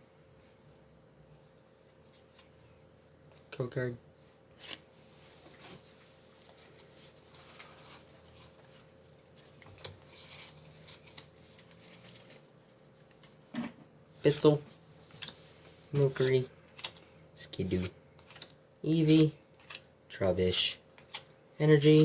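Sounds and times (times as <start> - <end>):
trading cards rustling and clicking: 15.1 - 19.8.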